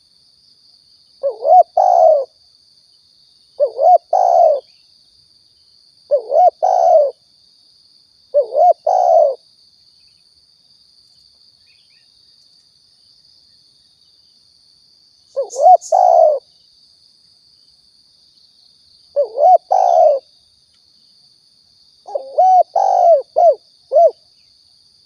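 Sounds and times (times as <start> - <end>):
dove cooing: 1.2 - 2.3, 3.6 - 4.7, 6.1 - 7.2, 8.4 - 9.4, 15.4 - 16.4, 19.2 - 20.3, 22.1 - 24.2.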